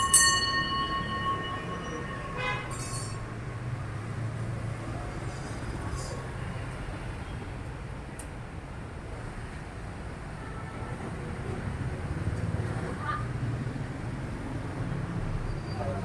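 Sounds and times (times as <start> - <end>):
ringing tone: 0.0 - 4.6.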